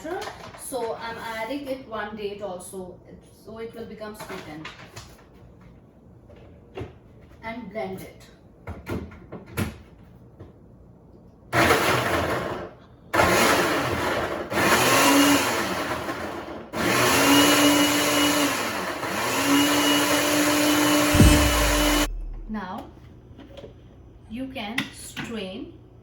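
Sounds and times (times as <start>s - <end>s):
electric blender grinding: 13.2s - 22.1s.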